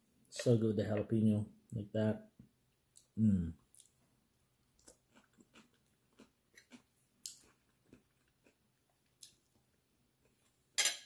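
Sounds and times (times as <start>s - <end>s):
person chewing food: 2.9s - 10.7s
small chewing clicks: 4.7s - 9.5s.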